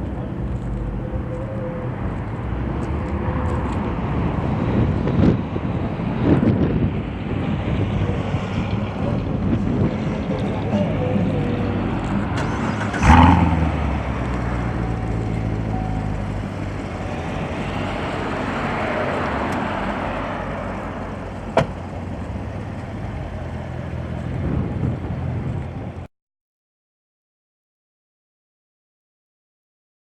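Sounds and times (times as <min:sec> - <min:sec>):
vehicle passing by: 0:00.0 - 0:26.0
car engine running: 0:10.5 - 0:18.7.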